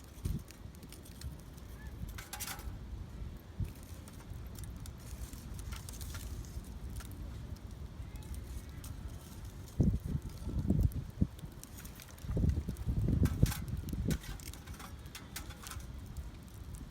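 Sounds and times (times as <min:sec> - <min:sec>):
charcoal clinking on metal grill: 0:00.1 - 0:02.8, 0:11.4 - 0:16.8.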